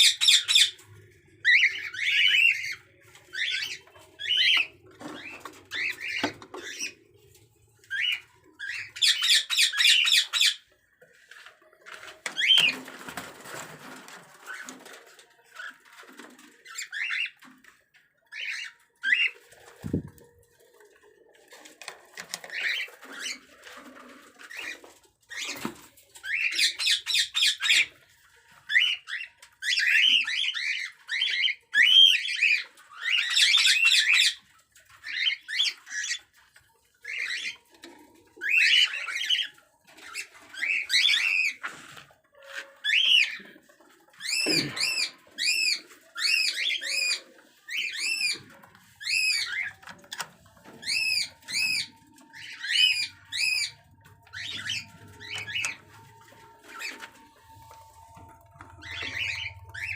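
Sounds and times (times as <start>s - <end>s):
cockatiel squawking: 58.8s - 59.9s.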